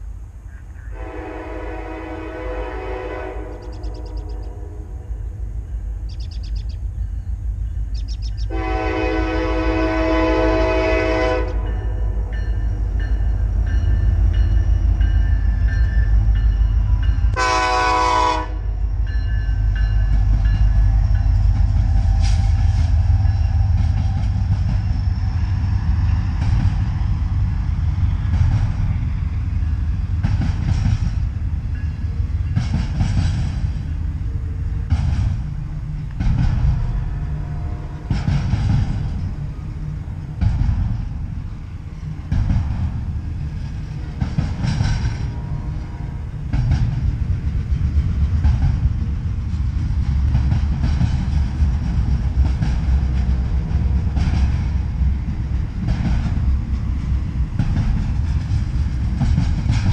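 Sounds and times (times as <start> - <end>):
freight train rumbling past: 0.0 - 59.9
diesel locomotive horn: 0.8 - 6.0, 8.3 - 28.3, 36.6 - 38.5, 45.0 - 46.6.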